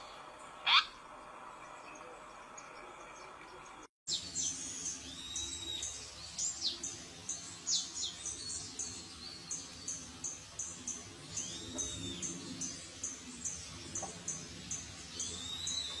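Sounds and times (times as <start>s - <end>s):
birds chirping: 0.0s - 16.0s
bird whistle: 0.6s - 0.9s.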